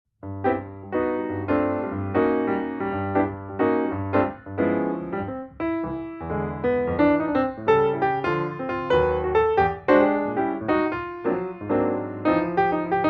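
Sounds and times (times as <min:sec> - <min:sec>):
piano music: 0:00.2 - 0:13.0.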